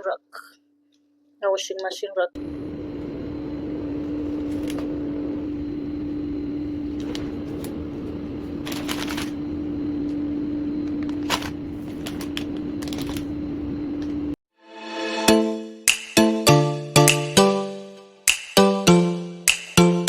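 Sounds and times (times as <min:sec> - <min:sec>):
steady hum: 0:02.4 - 0:14.4
rustles and clicks of handling: 0:04.0 - 0:05.0, 0:06.9 - 0:10.2, 0:10.8 - 0:13.4.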